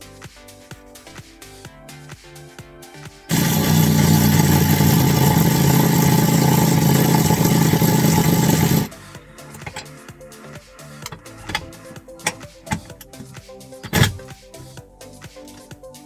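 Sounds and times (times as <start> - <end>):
loud mechanical engine noise: 3.3 - 8.9, 9.5 - 9.9, 11.0 - 13.2, 13.8 - 14.3.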